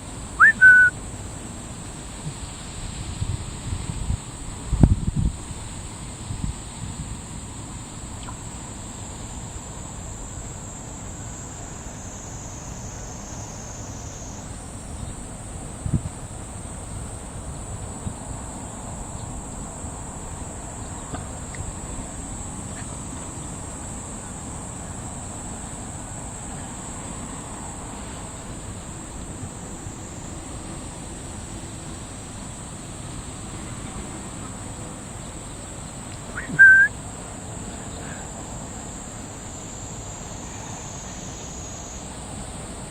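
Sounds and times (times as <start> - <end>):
insects chirping: 0.0 - 42.9
low wind rumble: 2.2 - 7.3.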